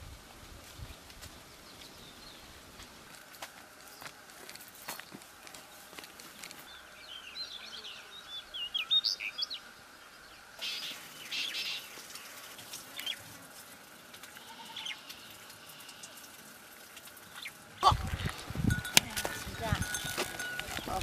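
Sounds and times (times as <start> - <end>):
small birds chirping: 0.8 - 3.0, 3.8 - 21.0.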